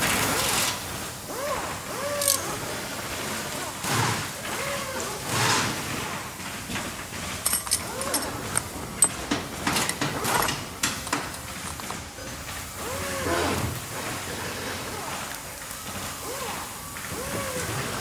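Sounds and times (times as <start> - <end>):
sharp metal clicks and clinks: 2.2 - 2.5, 7.4 - 12.4
handling rustle: 6.8 - 12.6.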